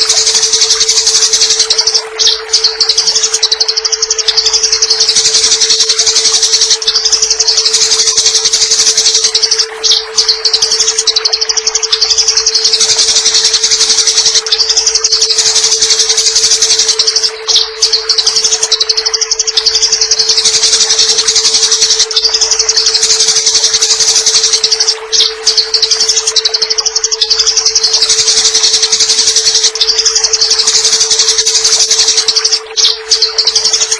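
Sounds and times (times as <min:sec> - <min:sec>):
steady low hum: 0:00.0 - 0:33.9
sparrow fast high chattering: 0:04.6 - 0:11.2, 0:12.2 - 0:18.8, 0:19.8 - 0:26.6, 0:27.3 - 0:33.9.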